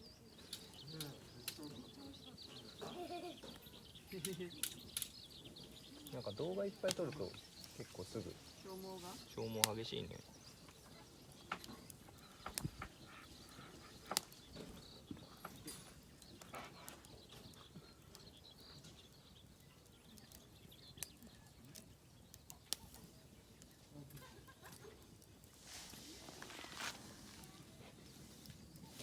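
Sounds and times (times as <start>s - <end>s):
campfire crackling and popping: 0.0s - 29.0s.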